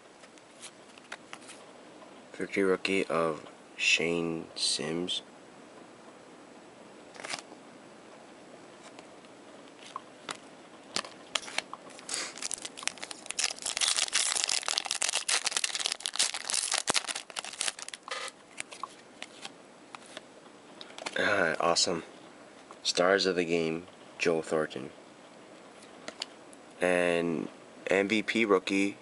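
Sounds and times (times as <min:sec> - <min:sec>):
wrapper crinkling: 0:11.4 - 0:18.7.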